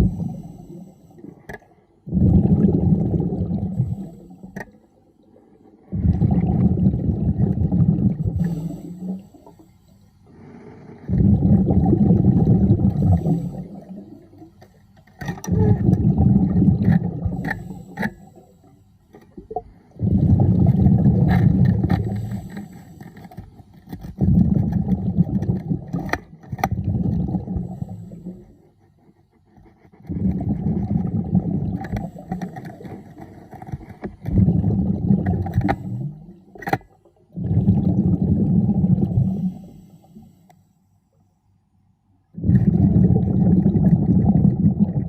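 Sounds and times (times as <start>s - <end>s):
underwater air bubbling: 0.0s - 28.7s, 30.0s - 40.5s, 42.3s - 45.0s.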